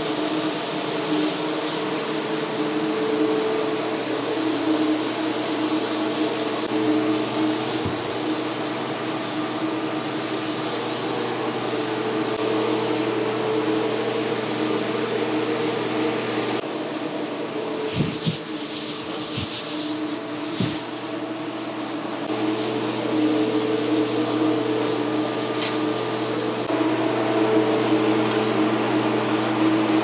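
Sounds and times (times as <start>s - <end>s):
compressed air blowgun hissing: 17.8s - 26.7s.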